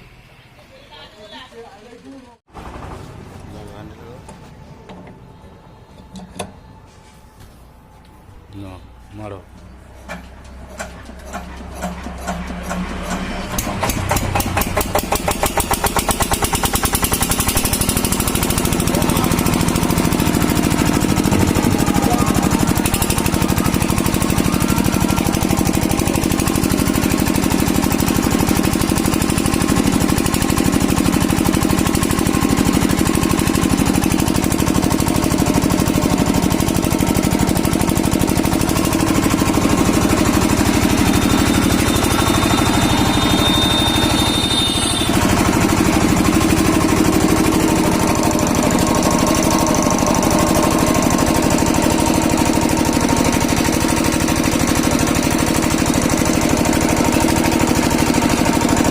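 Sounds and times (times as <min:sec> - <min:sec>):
diesel engine knocking: 0:09.8 - 0:58.9.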